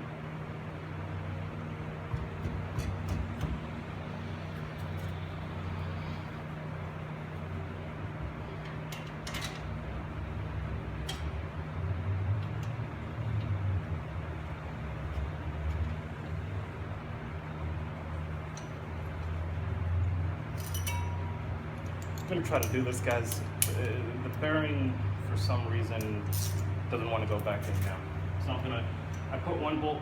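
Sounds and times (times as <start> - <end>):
steady low hum: 0.0 - 30.0
metallic clicks of hand tools: 20.6 - 21.2.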